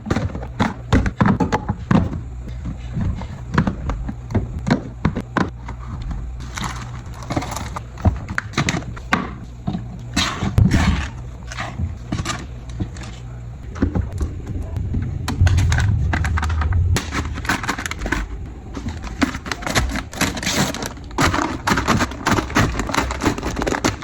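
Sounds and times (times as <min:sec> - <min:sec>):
groceries knocking and clattering: 0:00.0 - 0:24.0
packaging rustling: 0:15.4 - 0:24.0.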